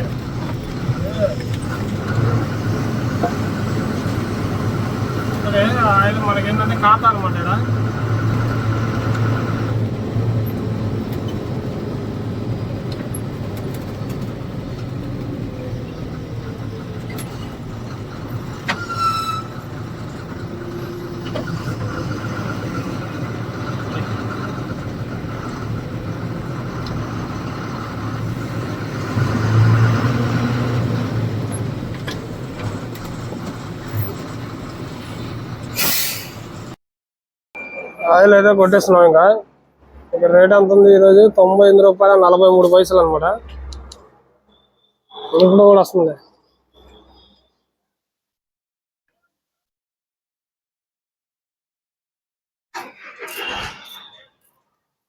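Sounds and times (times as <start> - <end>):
lorry diesel engine running: 0.0 - 36.8.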